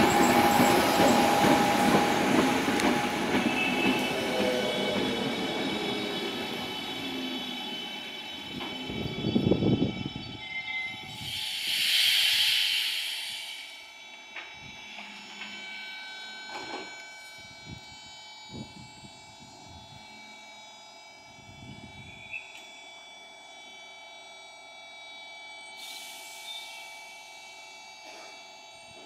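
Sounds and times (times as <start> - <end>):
electric train whine: 0.0 - 29.0
short hiss: 11.2 - 13.6.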